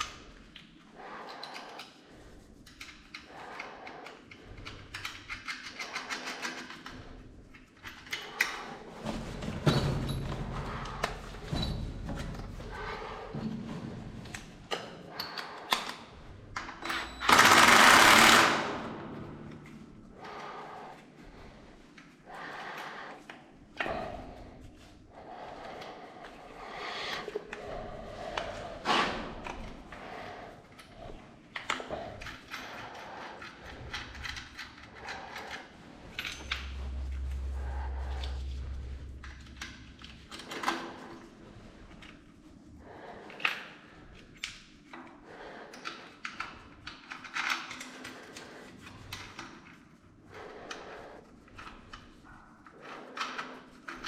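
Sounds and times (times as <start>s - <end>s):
rattling power tool: 17.2s - 18.9s
low hum: 32.1s - 42.9s.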